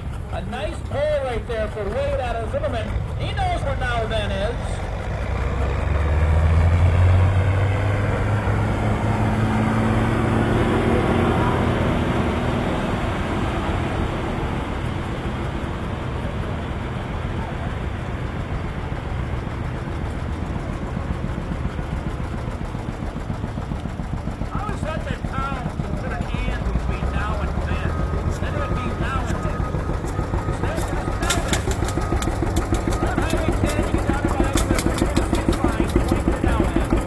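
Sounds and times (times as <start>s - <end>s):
tractor engine running hard: 0.0s - 37.0s.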